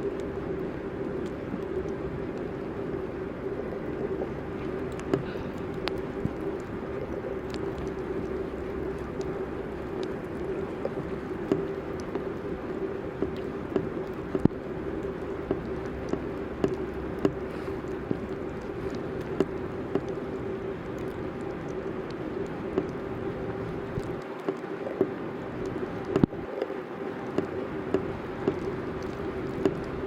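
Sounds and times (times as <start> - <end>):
steady street hum: 0.0 - 30.0
sharp clicks and ticks: 4.8 - 12.3, 13.1 - 23.0, 23.8 - 30.0.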